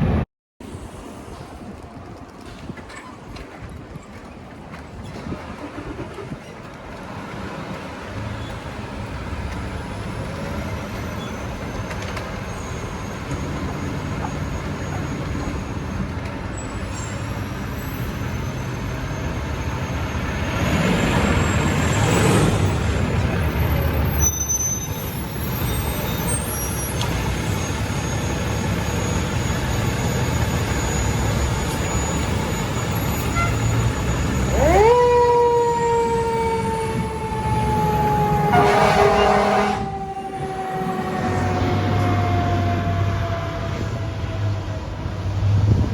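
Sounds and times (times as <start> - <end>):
engine rumble: 0.0 - 45.9
fire engine siren: 17.4 - 45.4
loud horn blasts: 33.2 - 43.9.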